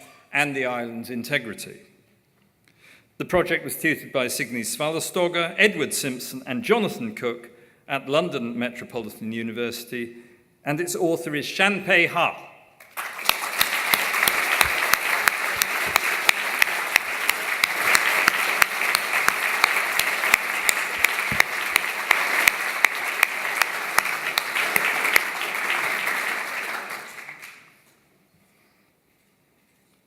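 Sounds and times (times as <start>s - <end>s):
sharp individual claps close by: 12.8s - 27.7s
audience applauding: 12.8s - 27.9s.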